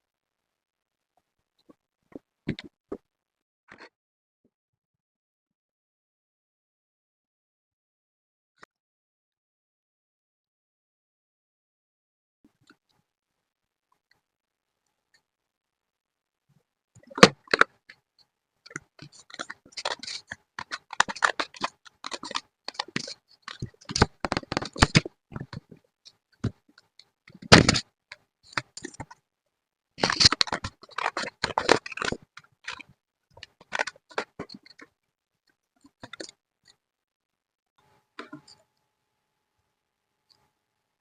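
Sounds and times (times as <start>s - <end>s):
paper rustling and clicks: 18.7s - 25.8s, 27.3s - 29.2s, 30.0s - 34.9s.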